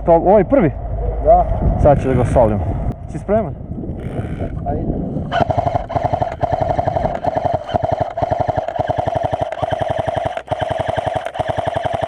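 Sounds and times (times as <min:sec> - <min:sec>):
airsoft gun rapid fire: 0:05.3 - 0:12.0.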